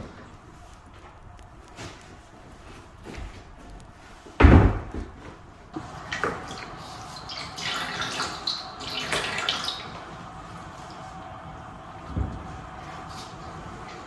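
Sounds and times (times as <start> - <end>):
heavy thump: 4.4 - 5.1.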